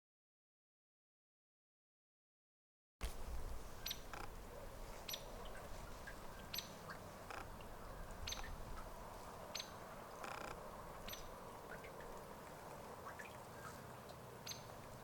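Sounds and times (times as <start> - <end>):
background hiss: 3.0 - 15.0.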